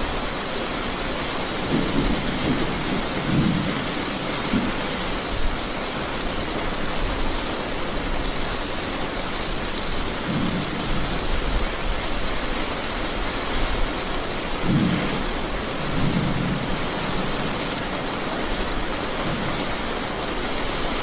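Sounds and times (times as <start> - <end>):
steady rain: 0.0 - 21.0
low thunder rumbles: 1.4 - 5.6, 10.1 - 11.8, 14.5 - 20.4.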